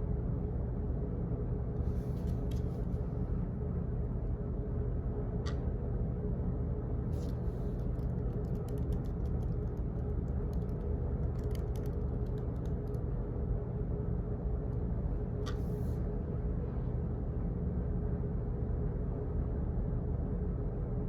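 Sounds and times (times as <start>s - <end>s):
low office hum: 0.0s - 21.0s
typing on computer keyboard: 7.2s - 13.0s.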